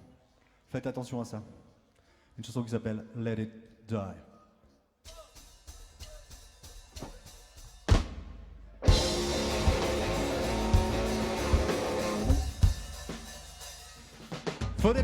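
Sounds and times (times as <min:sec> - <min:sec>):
rock band playing: 0:08.8 - 0:14.2
cymbal crash: 0:08.9 - 0:14.1.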